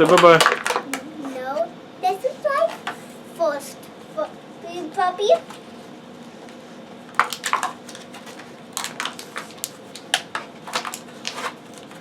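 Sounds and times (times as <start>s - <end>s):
plastic packaging crackling: 0.0s - 1.0s, 7.1s - 12.0s.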